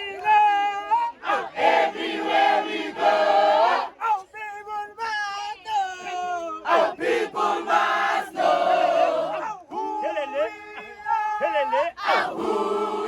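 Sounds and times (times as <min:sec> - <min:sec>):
group singing and chanting: 0:00.0 - 0:04.2, 0:06.4 - 0:13.0.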